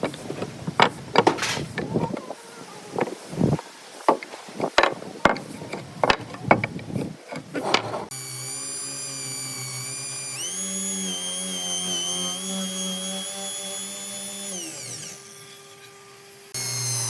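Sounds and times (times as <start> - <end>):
power tool motor whining: 0.1 - 2.0, 8.1 - 17.0.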